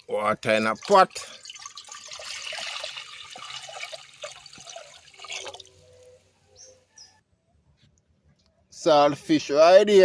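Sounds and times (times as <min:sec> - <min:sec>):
water pouring into pot: 0:00.6 - 0:05.7.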